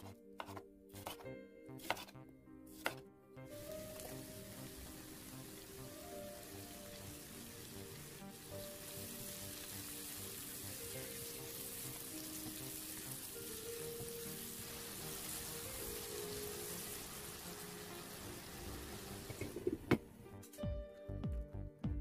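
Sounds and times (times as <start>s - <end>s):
soft background music: 0.0s - 22.0s
vegetables sizzling in hot oil: 3.6s - 19.8s.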